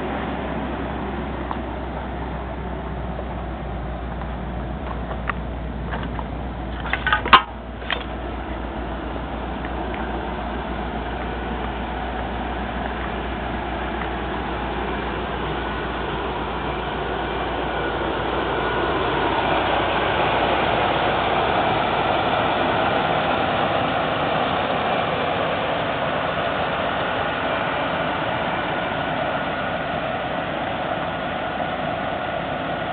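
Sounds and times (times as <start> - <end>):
car engine and road noise: 0.0 - 32.9.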